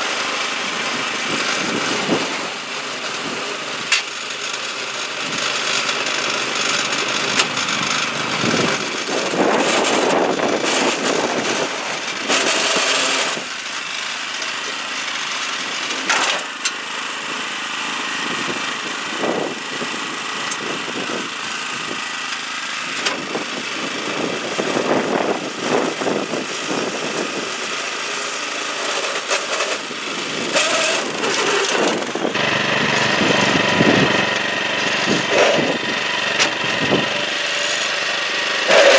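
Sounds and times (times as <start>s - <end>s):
small petrol engine running: 0.0s - 38.9s
rattles: 28.8s - 32.4s.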